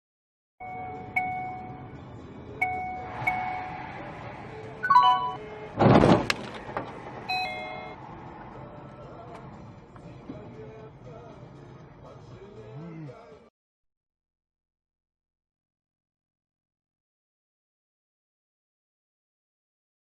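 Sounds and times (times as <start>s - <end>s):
vehicle warning chime: 0.6s - 3.8s, 4.8s - 5.6s, 7.3s - 8.0s
loud short crash: 5.8s - 6.6s.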